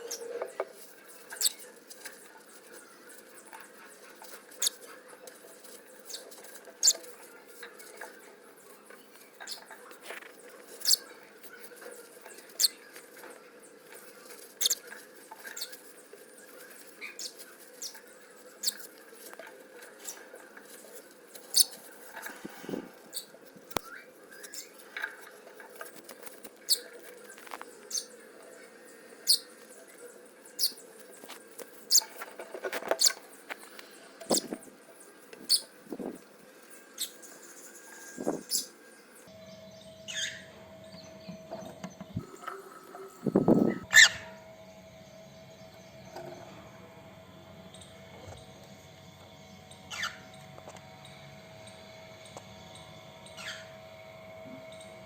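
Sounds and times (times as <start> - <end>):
cockatiel high-pitched ticks: 14.6 - 14.9.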